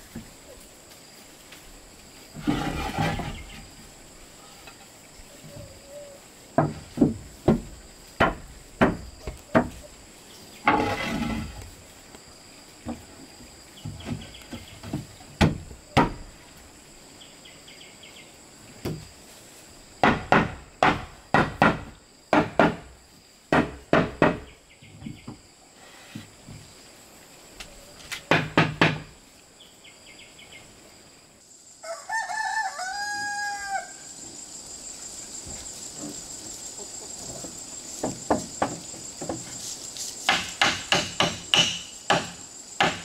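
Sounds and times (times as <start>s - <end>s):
insects buzzing: 0.0s - 43.0s
scraping sound: 2.4s - 3.7s, 10.7s - 11.6s
hammer blows on wood: 40.3s - 43.0s.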